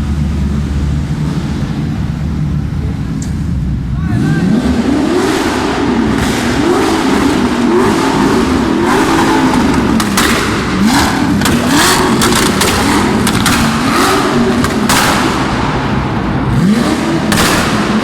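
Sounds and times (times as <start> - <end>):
car engine revving: 0.0 - 18.0
exhaust cracks and pops: 9.4 - 15.9, 17.3 - 18.0.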